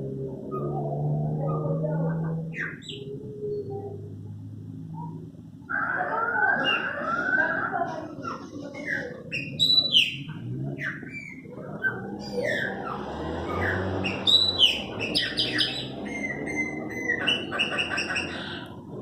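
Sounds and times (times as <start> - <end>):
blackbirds whistling song: 2.5 - 3.9, 8.8 - 18.7.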